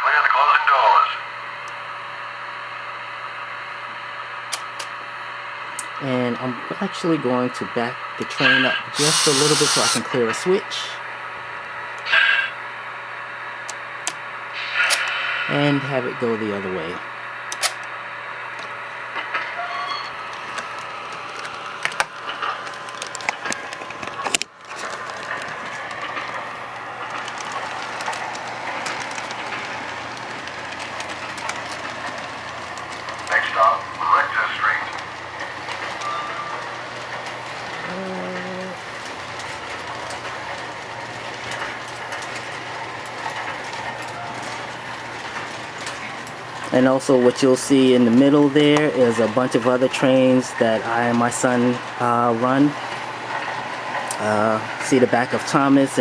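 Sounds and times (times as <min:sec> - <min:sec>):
model train rumble: 0:00.0 - 0:56.0
wheels clicking on rail joints: 0:08.2 - 0:10.6, 0:18.5 - 0:56.0.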